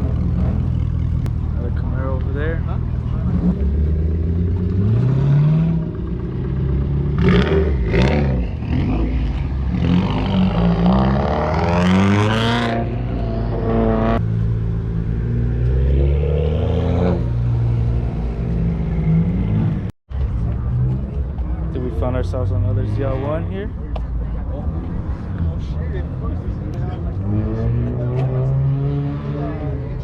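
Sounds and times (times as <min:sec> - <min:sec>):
car engines idling: 0:00.0 - 0:11.4
car engine revving: 0:00.0 - 0:19.9.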